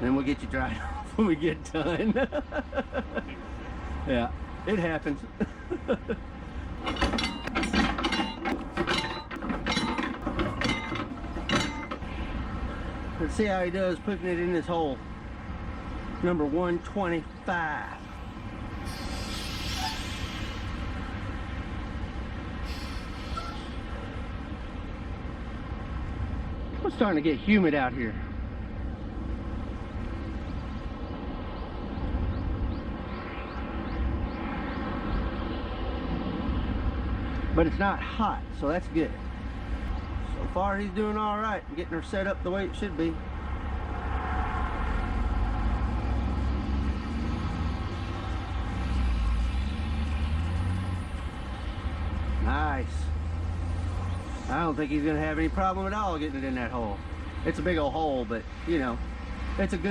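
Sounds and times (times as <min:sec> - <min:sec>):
truck diesel engine rumbling: 0:00.0 - 0:30.3
diesel engine running: 0:04.6 - 0:15.3
metallic clinks and rattles: 0:06.8 - 0:12.1.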